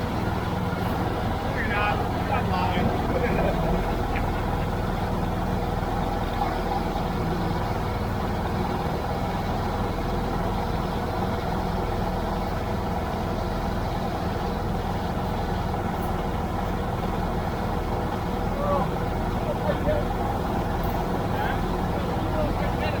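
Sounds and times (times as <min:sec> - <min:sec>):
tractor engine droning: 0:00.0 - 0:23.0.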